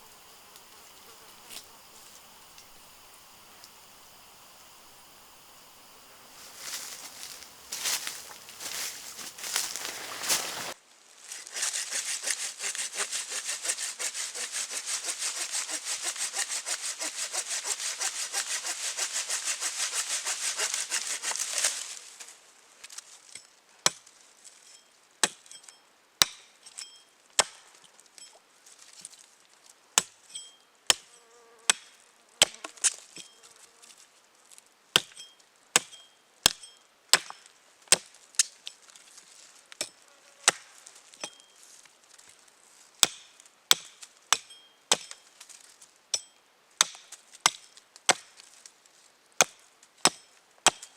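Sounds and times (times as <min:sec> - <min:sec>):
hand saw cutting wood: 0:06.6 - 0:22.1.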